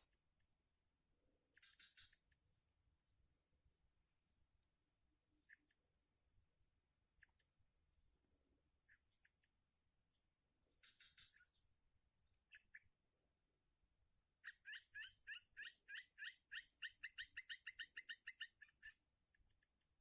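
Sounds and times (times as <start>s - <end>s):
bird chirping faintly: 1.4s - 9.8s, 10.7s - 13.0s.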